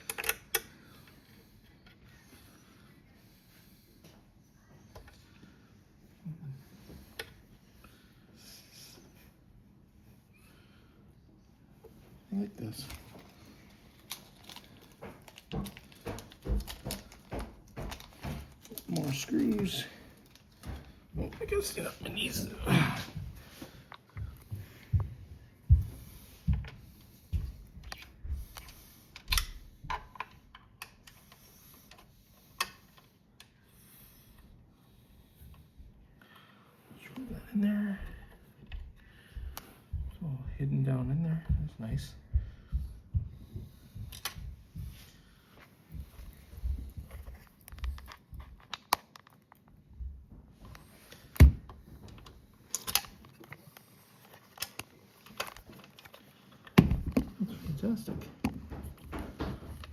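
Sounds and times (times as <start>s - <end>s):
small parts clicking and knocking: 0.0s - 1.0s, 12.7s - 21.0s, 46.2s - 49.8s, 50.6s - 57.4s.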